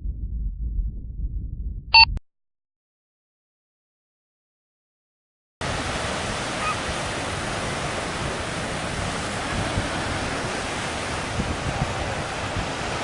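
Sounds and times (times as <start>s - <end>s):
ocean surf: 5.6s - 13.0s
wind: 5.6s - 13.0s.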